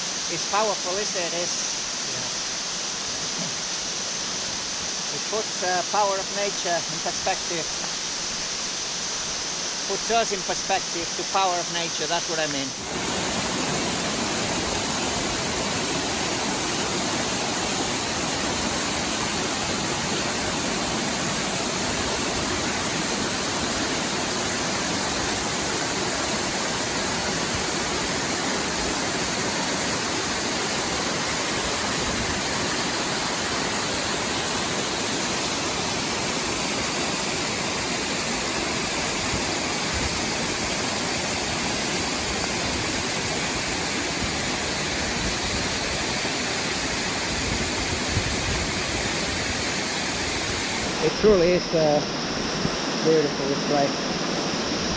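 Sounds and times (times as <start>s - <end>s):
waterfall pouring: 9.9s - 52.0s.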